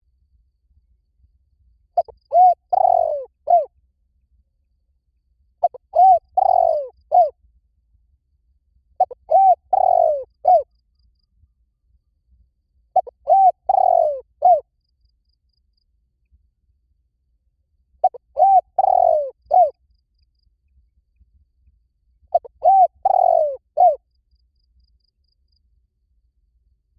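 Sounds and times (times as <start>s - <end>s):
dove cooing: 2.0s - 3.7s, 5.6s - 7.3s, 9.0s - 10.7s, 13.0s - 14.6s, 18.0s - 19.8s, 22.3s - 24.0s.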